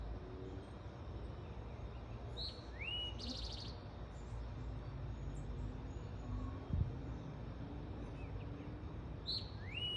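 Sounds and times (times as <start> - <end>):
sparrow singing: 9.2 - 9.9.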